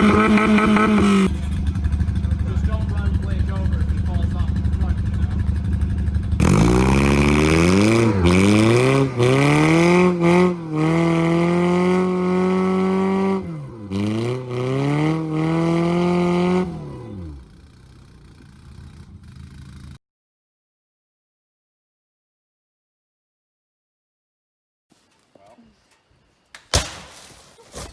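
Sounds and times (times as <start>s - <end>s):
car engine revving hard: 0.0s - 1.6s, 6.4s - 17.8s.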